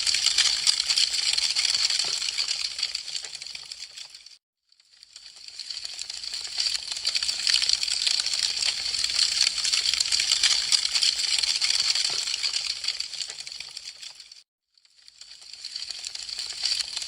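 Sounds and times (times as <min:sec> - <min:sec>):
wood fire crackling: 0:00.0 - 0:04.3, 0:05.1 - 0:14.4.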